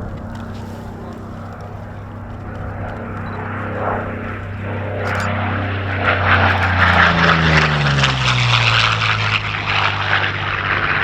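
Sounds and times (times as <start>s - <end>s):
propeller plane low fast pass: 0.0s - 11.0s.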